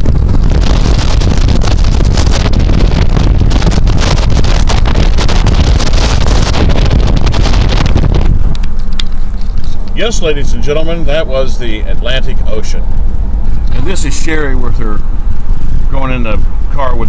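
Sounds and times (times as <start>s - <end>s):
low road noise rumble: 0.0s - 17.0s
wind buffeting microphone: 0.0s - 17.0s.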